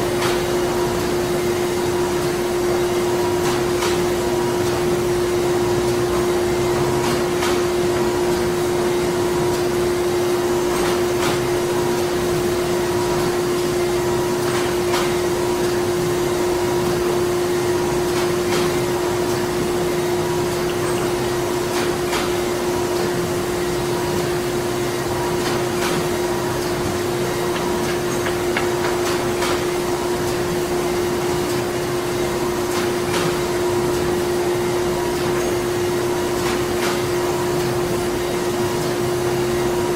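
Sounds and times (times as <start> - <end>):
printing machinery humming: 0.0 - 39.9.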